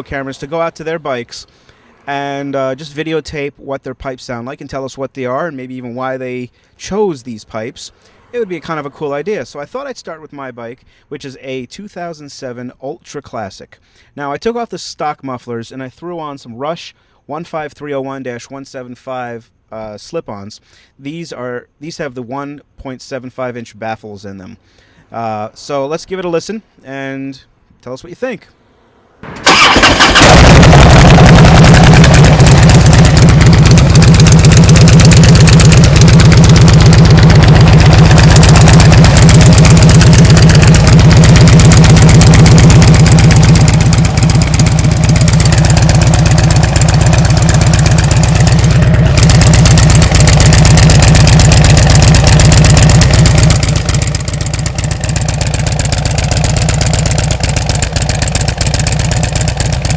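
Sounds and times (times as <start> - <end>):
motorcycle engine running: 29.2 - 59.9.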